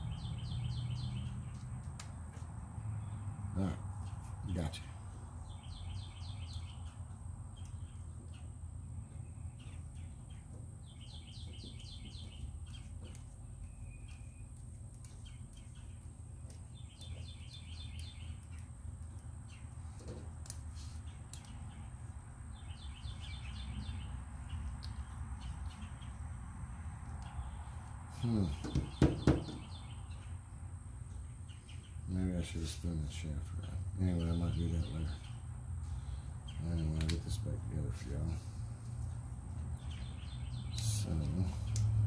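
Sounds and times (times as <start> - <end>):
steady low hum: 0.0 - 42.0
songbird trilling: 16.7 - 18.6.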